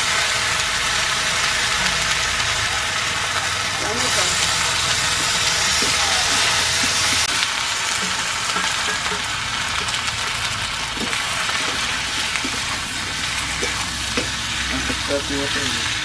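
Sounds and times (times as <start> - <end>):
vegetables sizzling in hot oil: 0.0 - 16.0
metal spatula scraping wok: 3.4 - 16.0.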